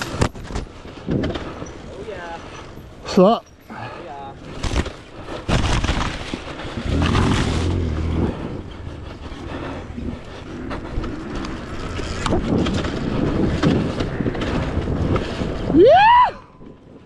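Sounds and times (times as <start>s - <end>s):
wind noise on microphone: 4.4s - 17.0s
dirt bike engine revving: 6.7s - 9.9s.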